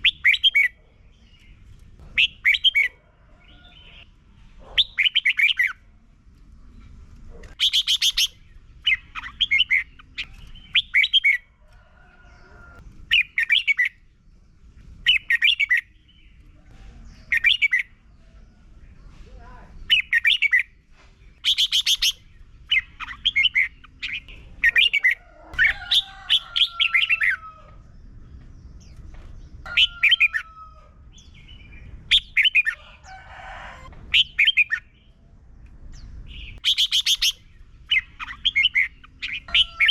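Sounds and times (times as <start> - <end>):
bird singing warbled phrases: 0.0 - 6.0, 6.6 - 11.6, 12.2 - 33.1, 34.1 - 39.9
low background rumble: 22.2 - 29.7.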